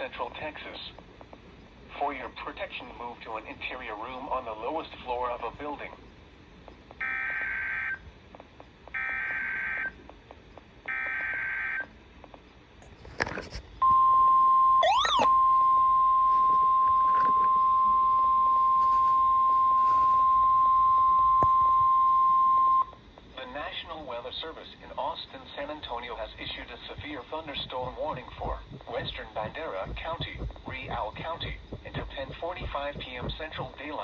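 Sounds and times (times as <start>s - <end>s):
steady warning alarm tone: 7.0s - 8.1s, 8.9s - 10.1s, 10.8s - 12.0s, 13.8s - 23.1s, 25.6s - 34.0s.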